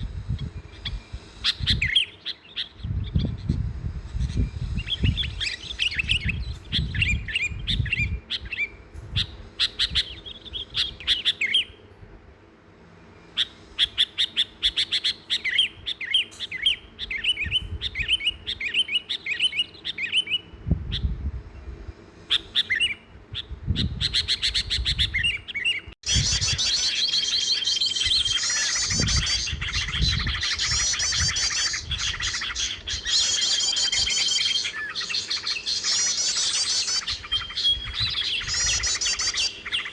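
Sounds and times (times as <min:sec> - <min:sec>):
small birds chirping: 0:00.0 - 0:39.9
bird long held whistle: 0:26.1 - 0:39.9.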